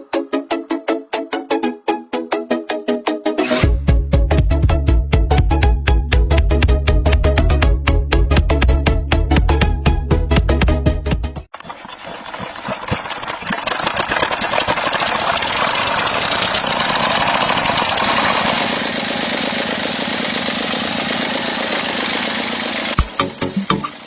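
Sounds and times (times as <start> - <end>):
small motor pump rattling: 11.5 - 24.0.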